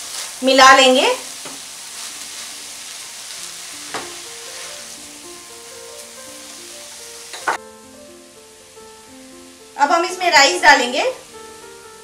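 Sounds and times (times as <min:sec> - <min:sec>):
vegetables sizzling in hot oil: 0:00.0 - 0:12.0
spatula scraping a pan: 0:03.4 - 0:05.0.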